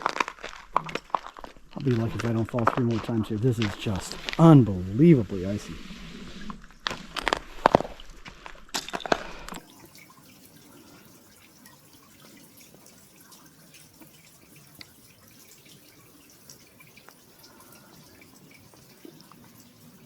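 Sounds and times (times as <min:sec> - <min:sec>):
sharp crunches and knocks: 0:00.0 - 0:04.7, 0:06.8 - 0:09.5
water dripping slowly: 0:09.6 - 0:20.0.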